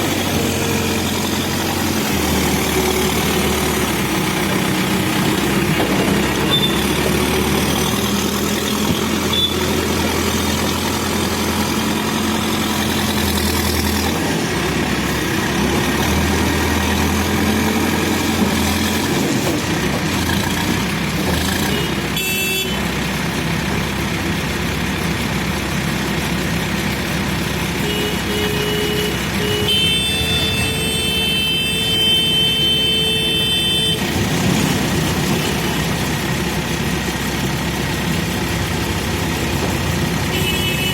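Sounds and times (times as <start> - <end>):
diesel engine running: 0.0 - 40.9
vehicle horn beeping: 6.5 - 6.8, 9.3 - 9.7, 21.7 - 22.8, 27.8 - 34.2, 40.3 - 40.9.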